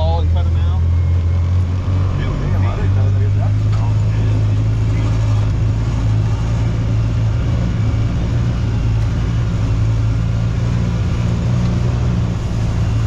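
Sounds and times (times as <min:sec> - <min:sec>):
utility vehicle engine droning: 0:00.0 - 0:13.0.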